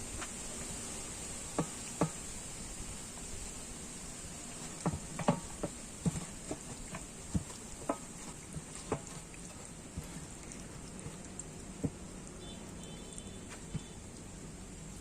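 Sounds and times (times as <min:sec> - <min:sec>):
hands mixing wet marinade: 0:04.4 - 0:15.0.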